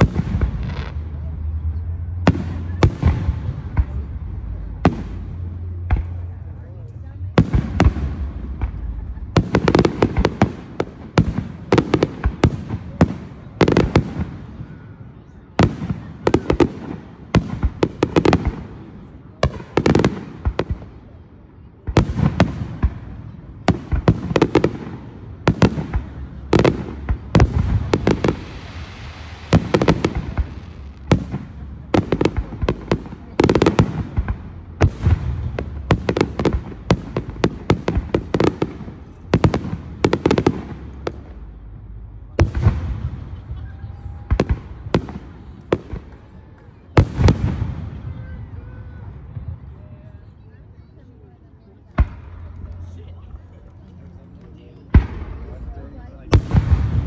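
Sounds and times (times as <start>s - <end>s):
sizzle of burning firework sparks: 25.8s - 33.2s.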